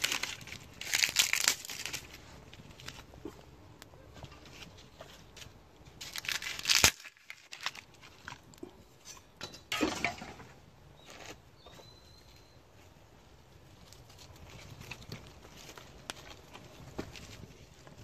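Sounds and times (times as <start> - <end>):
dry kindling and paper crunching: 0.0 - 8.7, 11.0 - 18.0
small cracks: 0.0 - 8.7.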